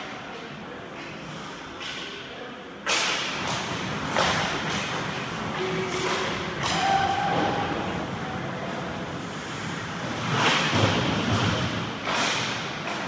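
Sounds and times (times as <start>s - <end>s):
skates scraping ice: 3.2s - 13.0s.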